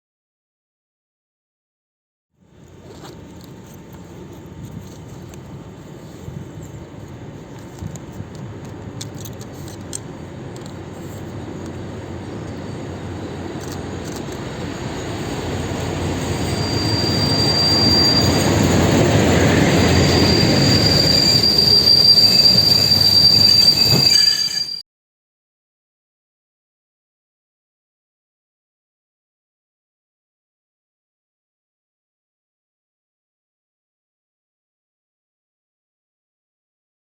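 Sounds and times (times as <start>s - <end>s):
diesel train passing: 2.5s - 24.8s
high-pitched wheel squeal: 12.5s - 24.8s.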